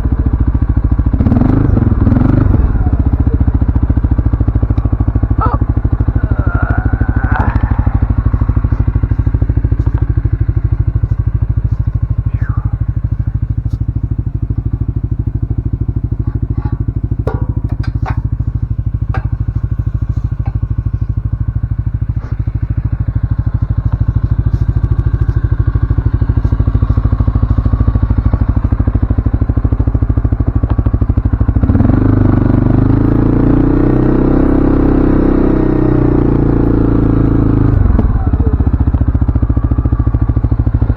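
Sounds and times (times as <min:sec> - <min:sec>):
atv engine running: 0:00.0 - 0:40.9
clatter and knocks: 0:16.3 - 0:21.0.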